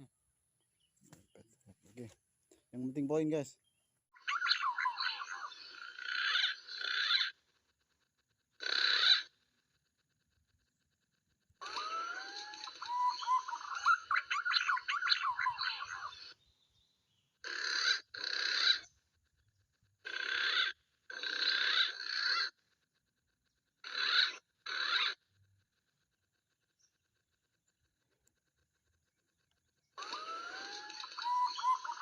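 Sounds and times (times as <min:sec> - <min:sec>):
bird chirping: 0:00.6 - 0:07.4, 0:11.6 - 0:17.4, 0:26.6 - 0:32.0.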